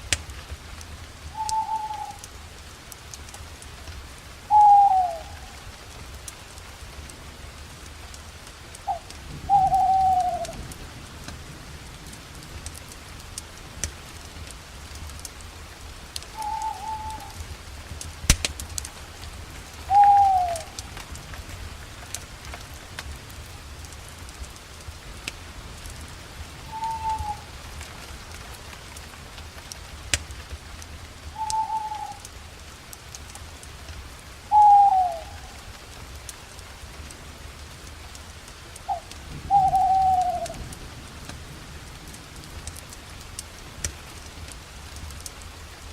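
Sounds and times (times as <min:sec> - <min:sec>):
campfire crackling and popping: 0:00.0 - 0:45.9
owl hooting: 0:01.3 - 0:02.2, 0:04.5 - 0:05.6, 0:08.9 - 0:10.6, 0:16.4 - 0:17.4, 0:19.9 - 0:20.8, 0:26.7 - 0:27.5, 0:31.4 - 0:32.2, 0:34.5 - 0:35.6, 0:38.9 - 0:40.6.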